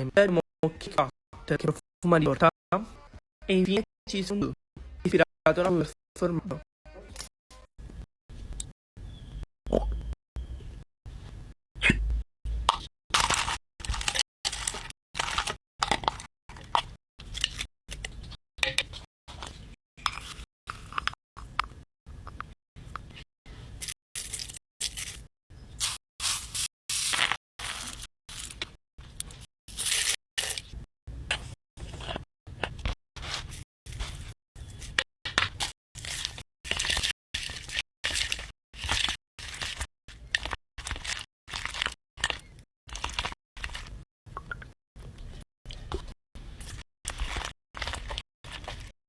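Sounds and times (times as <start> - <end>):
slime crackling and squishing: 13.1 - 17.6, 35.6 - 44.0, 46.6 - 48.9.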